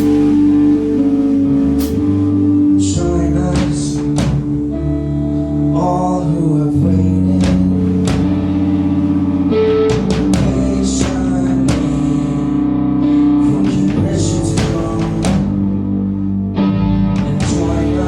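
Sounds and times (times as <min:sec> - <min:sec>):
drum and cymbal hits: 0:00.0 - 0:02.5, 0:03.5 - 0:04.9, 0:07.4 - 0:12.4, 0:13.7 - 0:15.7
bass: 0:00.0 - 0:18.0
electric guitar: 0:00.0 - 0:18.0.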